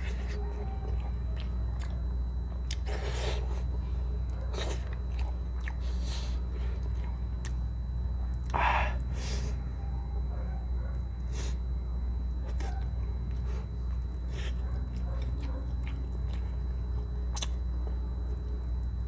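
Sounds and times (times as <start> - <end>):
steady low hum: 0.0 - 19.0
wet chewing and lip smacks: 0.6 - 2.9, 4.5 - 5.8, 6.7 - 7.6, 12.5 - 17.6.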